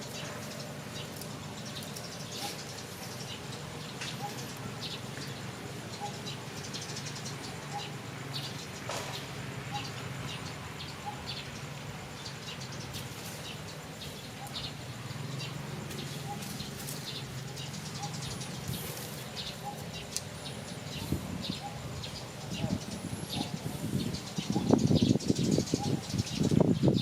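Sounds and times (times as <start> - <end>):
small animals chirping: 13.5 - 26.6.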